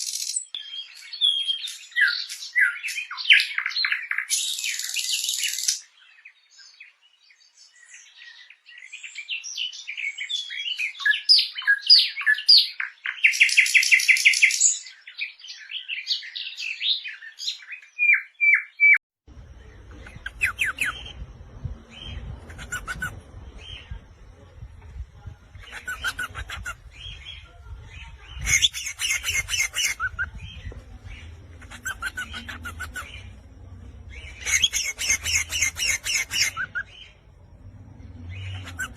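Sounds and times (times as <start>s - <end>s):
songbirds chirping and trilling: 0.0s - 38.9s
low steady hum: 19.3s - 28.6s, 30.0s - 38.9s
bird chirp bursts: 22.0s - 23.9s.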